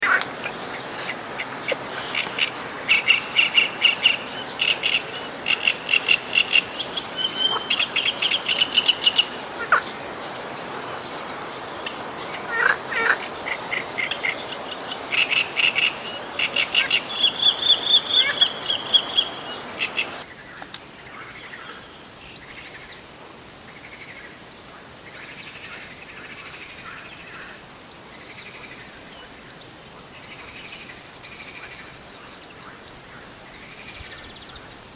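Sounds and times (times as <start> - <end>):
birds chirping and trilling: 0.0 - 20.4
faint birdsong: 0.0 - 34.9.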